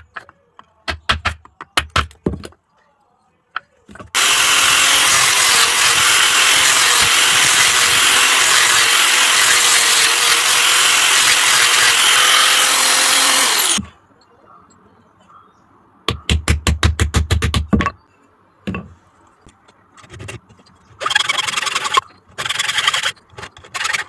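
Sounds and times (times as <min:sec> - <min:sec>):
electric power tool whining: 0:04.2 - 0:13.8.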